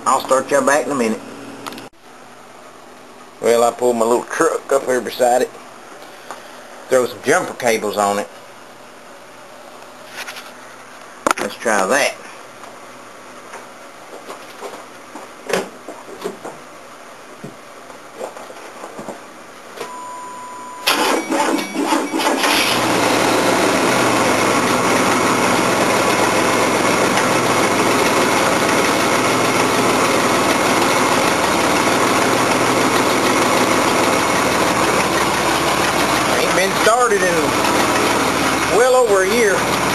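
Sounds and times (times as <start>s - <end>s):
short steady beep: 19.8s - 22.3s
pickup engine cranking and running: 20.8s - 39.9s.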